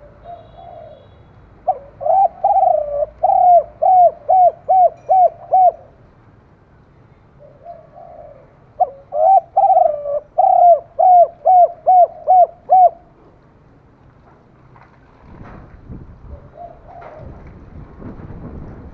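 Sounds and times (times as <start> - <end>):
dove cooing: 0.0 - 6.0, 7.4 - 13.2, 16.3 - 17.4.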